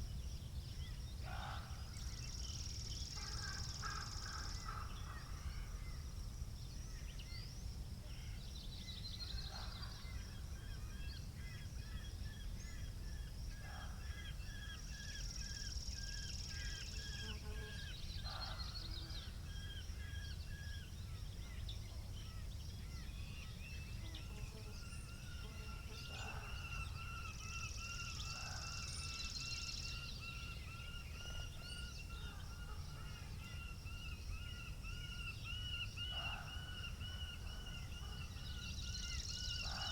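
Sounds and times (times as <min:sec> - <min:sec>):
low rumble of wind: 0:00.0 - 0:17.1, 0:17.9 - 0:39.9
birds chirping and trilling: 0:08.2 - 0:39.9.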